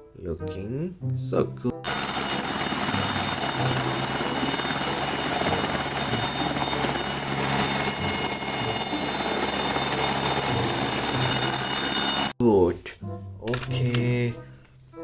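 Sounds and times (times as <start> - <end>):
helicopter rotor sound effect: 1.8 - 12.4.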